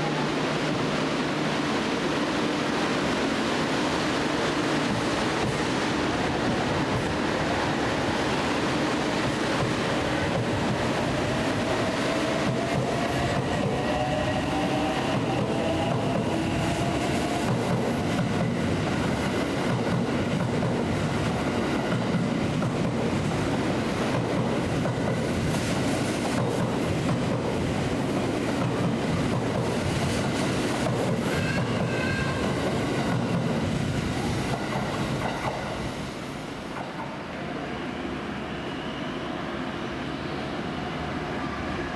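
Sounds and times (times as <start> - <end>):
train wheels rumbling on rail: 0.0 - 41.9
train wheel squeal: 31.1 - 33.1, 37.6 - 41.9.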